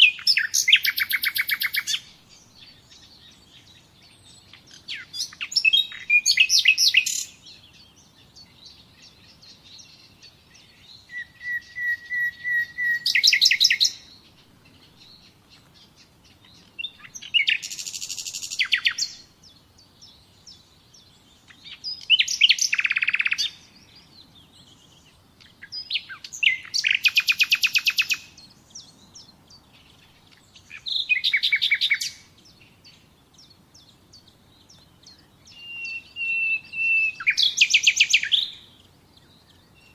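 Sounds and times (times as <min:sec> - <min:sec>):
faint background hiss: 0:00.0 - 0:39.9
songbird singing: 0:00.0 - 0:39.9.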